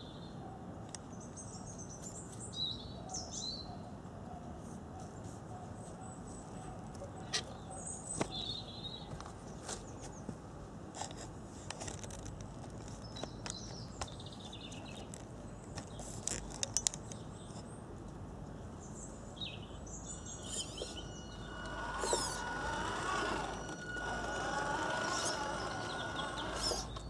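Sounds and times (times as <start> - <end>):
outdoor background noise: 0.0 - 27.0
birds chirping: 18.8 - 27.0
steady high whine: 20.0 - 27.0.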